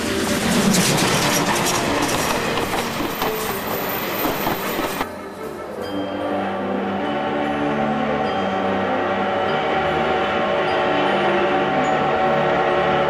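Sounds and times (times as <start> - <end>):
train wheels clattering: 0.0 - 5.1.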